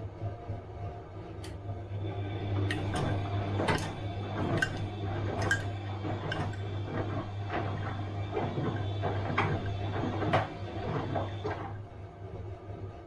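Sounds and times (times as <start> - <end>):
washing machine motor hum: 0.0 - 13.0
washing machine drum knocks: 2.7 - 11.6.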